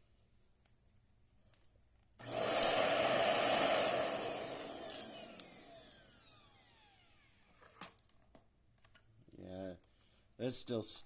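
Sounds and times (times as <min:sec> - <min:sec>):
vacuum cleaner motor: 0:02.2 - 0:07.7.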